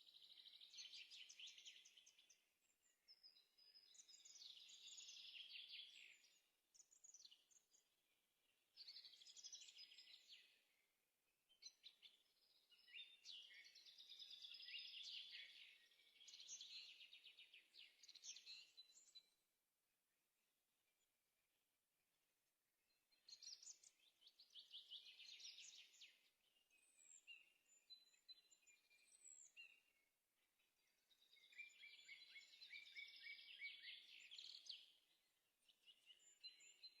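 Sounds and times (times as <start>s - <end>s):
small birds chirping: 0.0s - 19.4s, 22.9s - 37.0s.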